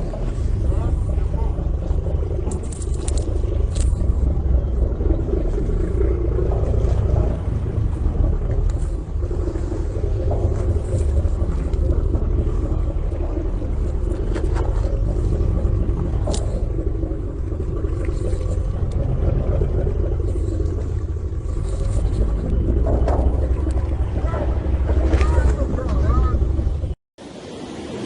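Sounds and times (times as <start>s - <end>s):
boat engine rumble: 0.0s - 28.0s.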